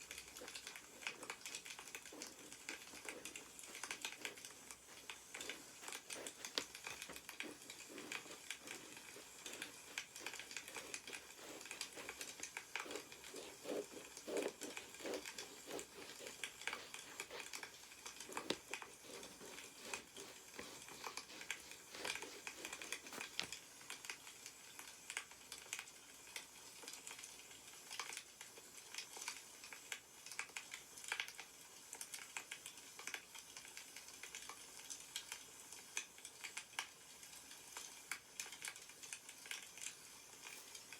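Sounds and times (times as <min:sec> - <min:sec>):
wood fire crackling: 0:00.0 - 0:24.2
paper rustling: 0:00.1 - 0:23.6.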